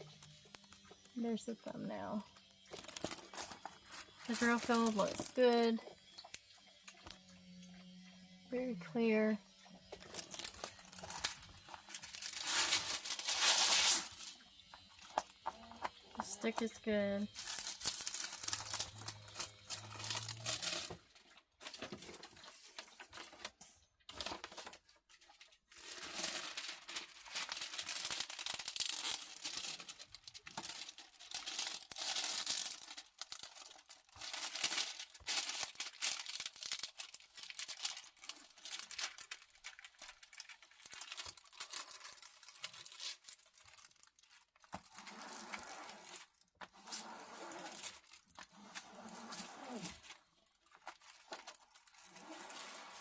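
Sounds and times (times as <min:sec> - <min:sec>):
plastic film crinkling: 0:00.0 - 0:07.2, 0:08.6 - 0:53.0.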